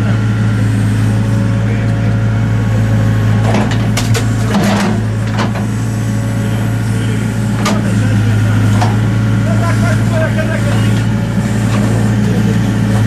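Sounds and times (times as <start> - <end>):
engine running: 0.0 - 13.0
wooden knocks and clatters: 3.5 - 5.7.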